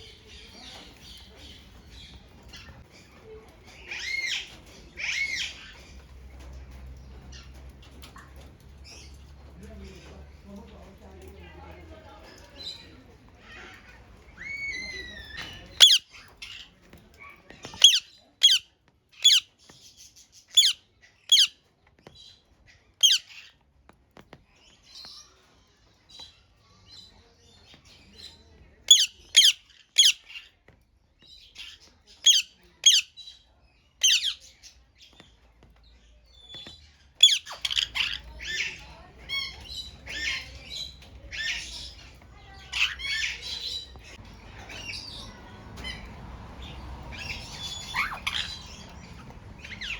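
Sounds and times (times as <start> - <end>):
parrots squawking: 13.4 - 16.4, 17.7 - 19.5, 20.5 - 21.6, 23.0 - 23.4, 28.9 - 30.4, 32.2 - 33.1, 34.0 - 34.5, 37.2 - 49.9.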